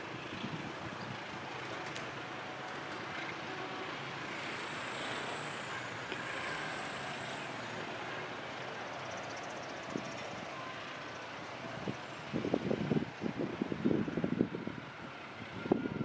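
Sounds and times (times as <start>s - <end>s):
passenger train pulling away: 0.0s - 16.0s
faint high squeal: 4.4s - 7.7s, 9.0s - 11.2s.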